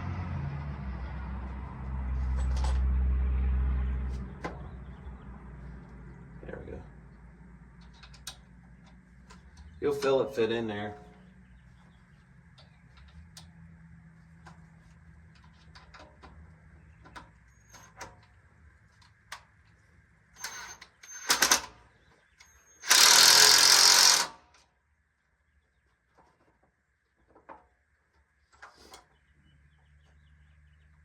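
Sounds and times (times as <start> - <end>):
impact driver running screws: 20.4 - 21.8, 22.4 - 24.6.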